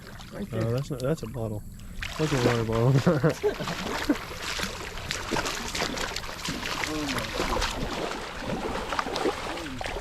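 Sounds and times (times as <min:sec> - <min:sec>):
water trickling: 0:00.0 - 0:10.0
footsteps splashing through water: 0:02.0 - 0:10.0.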